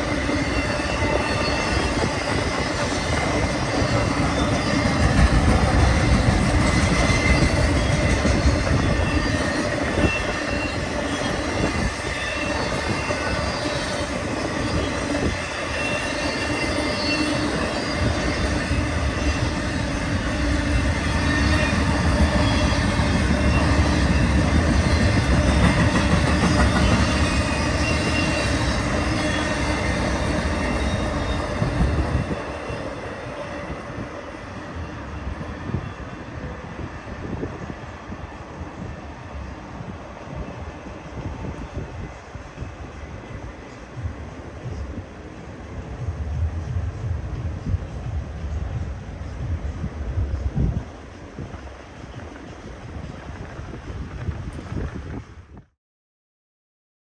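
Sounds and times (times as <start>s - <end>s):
wheels squealing against rail: 0.0s - 34.0s
freight train rolling on rails: 0.0s - 55.7s.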